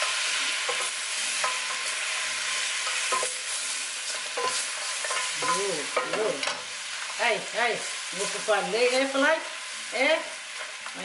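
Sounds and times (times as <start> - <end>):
meat sizzling in hot oil: 0.0 - 11.0
utensils knocking and scraping pan: 2.8 - 6.7.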